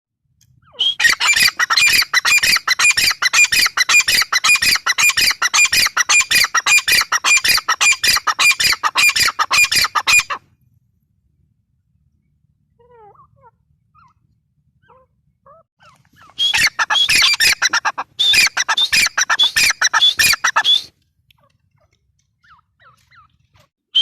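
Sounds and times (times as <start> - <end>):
francolin calling: 14.8 - 20.9.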